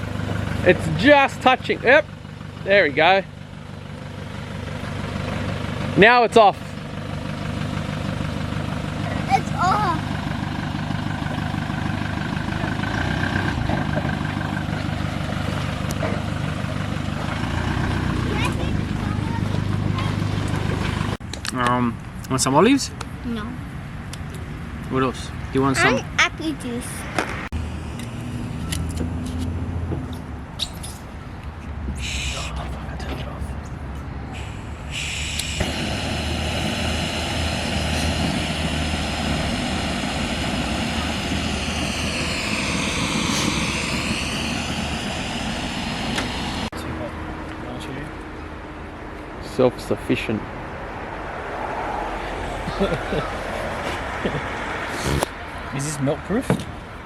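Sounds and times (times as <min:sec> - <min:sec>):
vehicle engine idling: 0:00.0 - 0:21.3, 0:27.5 - 0:51.2, 0:52.0 - 0:57.0
faint high whine: 0:39.1 - 0:46.7.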